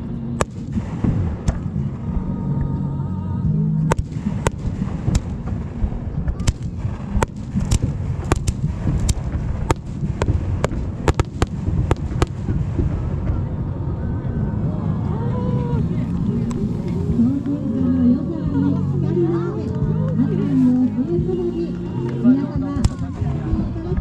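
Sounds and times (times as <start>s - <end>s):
continuous low rumble: 0.0s - 24.0s
fireworks cracks and bangs: 0.4s - 1.9s, 3.9s - 13.6s.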